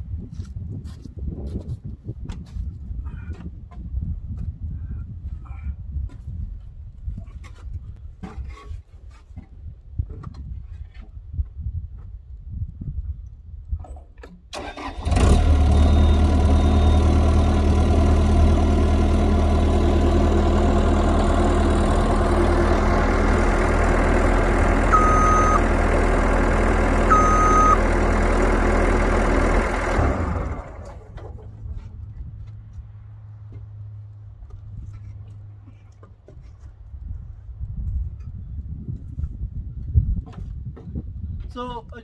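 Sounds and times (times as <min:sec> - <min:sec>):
loader engine running: 0:14.5 - 0:35.6
short beeps: 0:24.9 - 0:25.6, 0:27.1 - 0:27.8.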